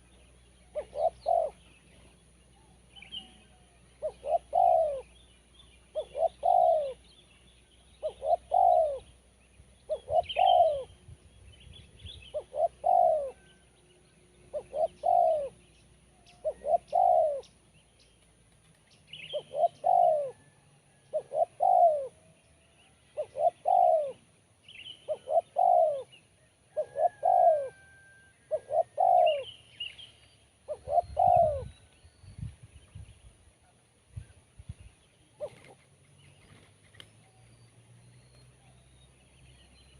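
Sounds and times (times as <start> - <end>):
small birds chirping: 0.0 - 20.4, 21.0 - 27.8, 28.5 - 39.9
dove cooing: 0.7 - 1.8, 3.0 - 5.2, 5.9 - 7.1, 8.0 - 9.1, 9.9 - 11.0, 12.3 - 13.6, 14.5 - 17.5, 19.2 - 22.3, 23.1 - 24.3, 25.0 - 29.6, 30.7 - 31.8, 35.4 - 35.9.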